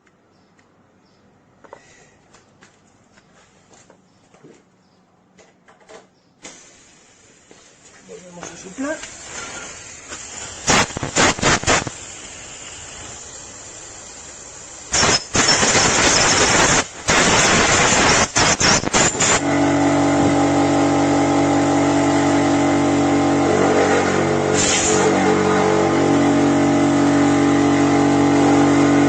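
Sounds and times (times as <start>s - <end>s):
compressed air blasts: 6.4s - 7.5s, 9.1s - 21.1s, 21.7s - 28.5s
steady motor hum: 19.3s - 29.0s.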